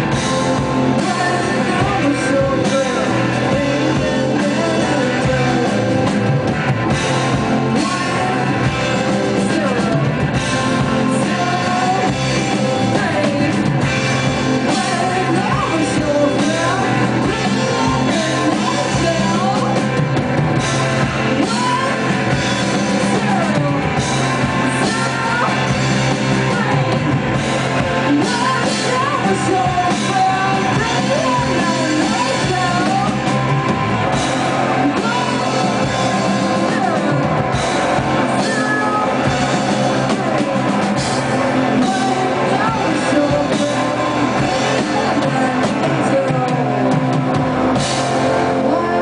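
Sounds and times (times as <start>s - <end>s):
drums: 0.0s - 49.0s
guitar: 0.0s - 49.0s
person singing: 0.0s - 49.0s.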